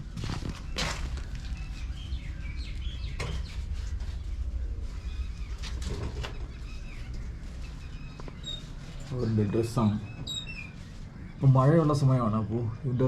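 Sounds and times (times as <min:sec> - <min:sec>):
steady low rumble: 0:00.0 - 0:10.2
small birds chirping: 0:00.0 - 0:13.0.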